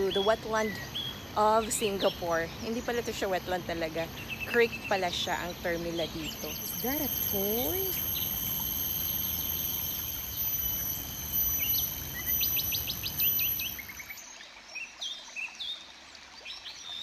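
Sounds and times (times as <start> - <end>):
wild birds chirping: 0.0 - 17.0
high-pitched whine: 5.2 - 14.0.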